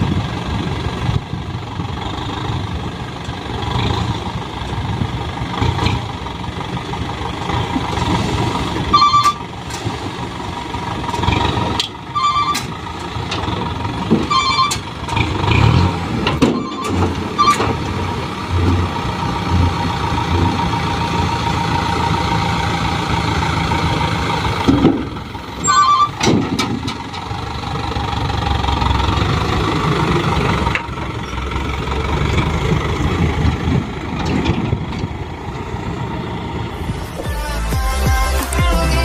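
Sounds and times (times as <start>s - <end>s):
truck diesel engine running: 0.0s - 39.0s
electronic beeps: 8.9s - 9.4s, 12.2s - 12.7s, 14.3s - 14.8s.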